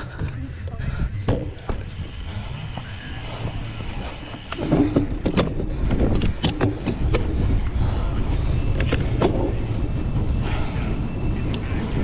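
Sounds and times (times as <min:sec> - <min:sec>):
tyres rumbling on rough ground: 0:01.1 - 0:06.2
bike clacking and rattling: 0:01.1 - 0:07.4.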